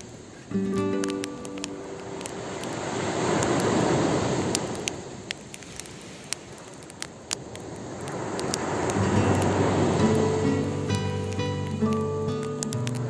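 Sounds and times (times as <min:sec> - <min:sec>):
wood fire crackling and popping: 0:00.0 - 0:13.0
guitar music: 0:00.3 - 0:03.7, 0:08.8 - 0:13.0
sea wave washing up: 0:01.0 - 0:13.0.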